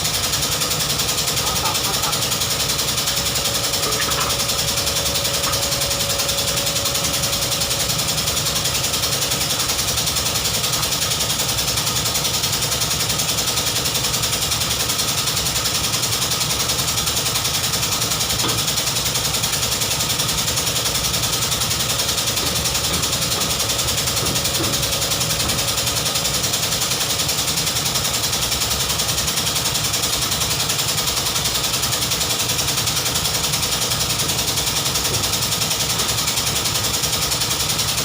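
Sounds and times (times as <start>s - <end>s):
car engine idling: 0.0s - 28.7s.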